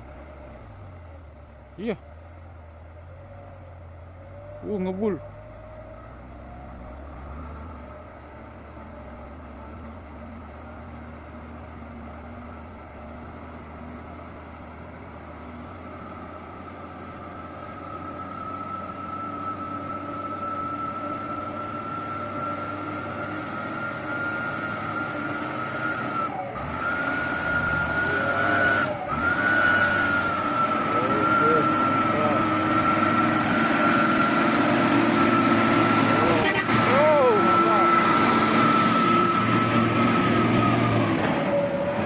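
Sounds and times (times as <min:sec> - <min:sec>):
diesel truck engine under load: 0:00.0 - 0:42.0
high steady whine: 0:16.4 - 0:41.9.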